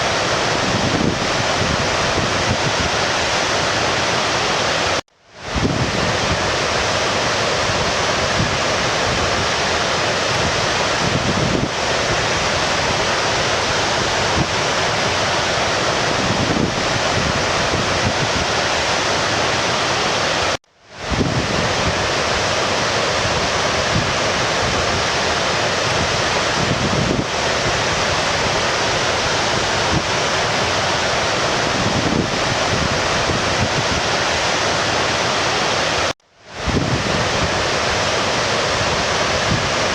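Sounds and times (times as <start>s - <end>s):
brook water rushing: 0.0s - 39.9s.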